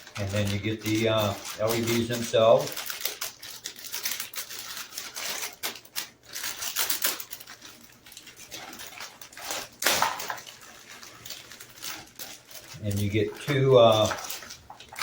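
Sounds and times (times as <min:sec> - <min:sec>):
packaging rustle: 0:00.0 - 0:15.0
plastic packaging crinkling: 0:00.0 - 0:15.0.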